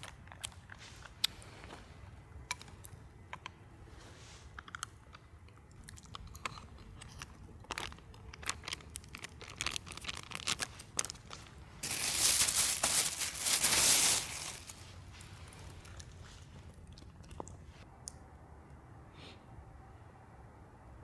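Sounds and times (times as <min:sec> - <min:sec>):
dense crunching and crinkling: 0:06.5 - 0:17.5.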